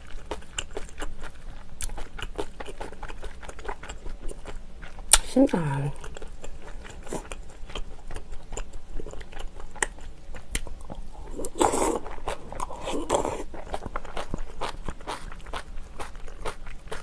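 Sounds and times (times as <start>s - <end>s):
crunching and chewing: 0.0s - 17.0s
slurping: 11.3s - 13.8s.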